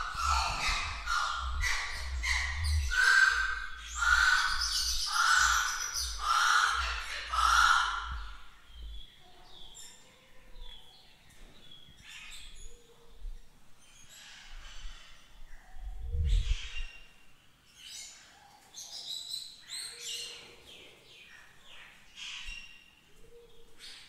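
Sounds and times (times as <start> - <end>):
harsh bird calls: 0.0 - 10.9
small birds chirping: 0.0 - 24.0.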